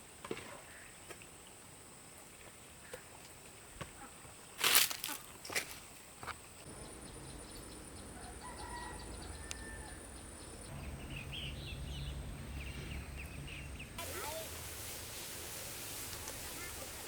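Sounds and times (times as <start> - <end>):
bird chirps: 6.7 - 14.0
rooster crowing: 8.0 - 10.5.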